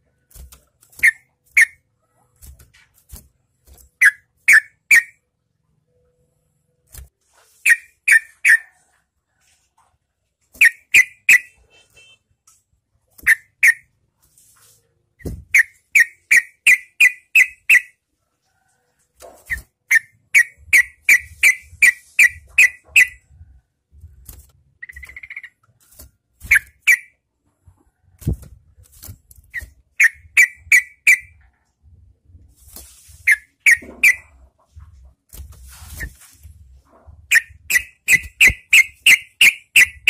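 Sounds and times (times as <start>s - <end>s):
bird calling sharp notes: 15.5s - 17.9s, 26.5s - 27.1s, 29.5s - 31.3s, 33.3s - 34.3s, 37.3s - 40.0s.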